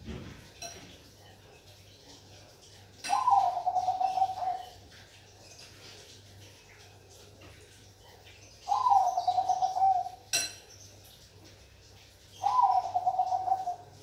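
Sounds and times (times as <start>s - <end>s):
dove cooing: 3.0s - 4.8s, 8.7s - 10.3s, 12.4s - 14.0s.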